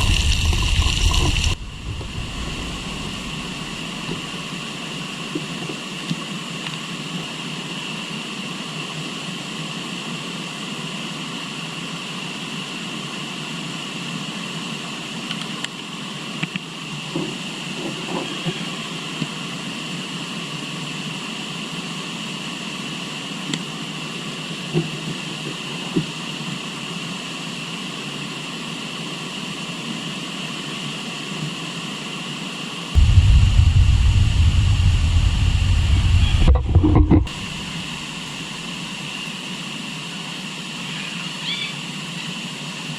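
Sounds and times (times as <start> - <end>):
loud low rumble: 0.0 - 4.6, 33.0 - 38.4
river water rushing: 0.0 - 5.3, 33.0 - 38.8.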